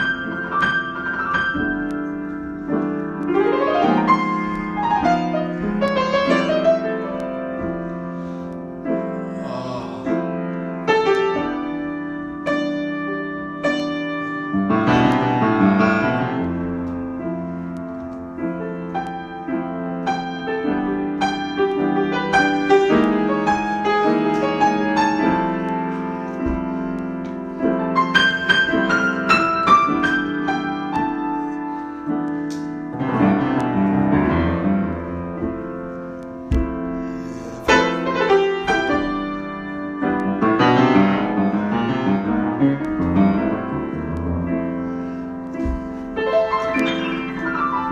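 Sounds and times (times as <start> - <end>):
solo piano: 0.0 - 47.9.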